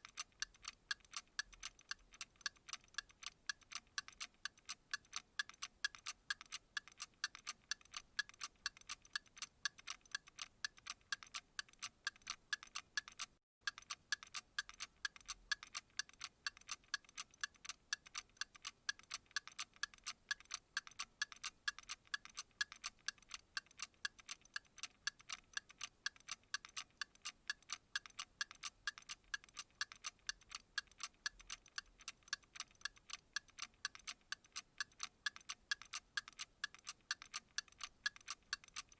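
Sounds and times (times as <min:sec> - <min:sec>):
steady ticking: 0:00.0 - 0:38.9.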